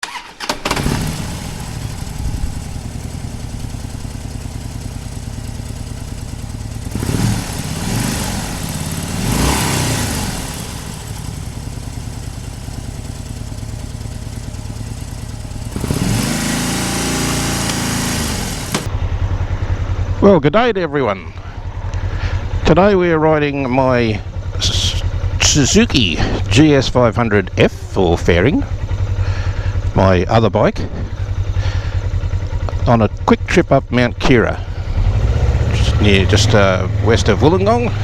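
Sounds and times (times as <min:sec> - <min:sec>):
motorcycle engine idling and revving: 0:00.0 - 0:38.0.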